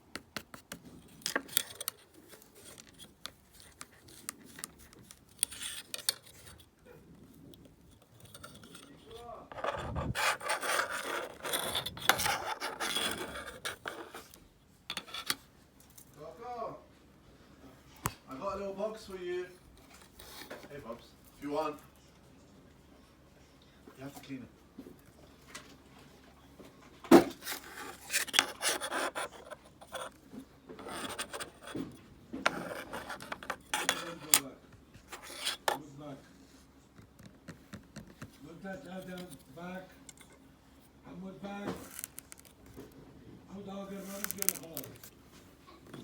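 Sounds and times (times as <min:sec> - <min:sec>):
tool scraping sand: 0:08.6 - 0:14.3.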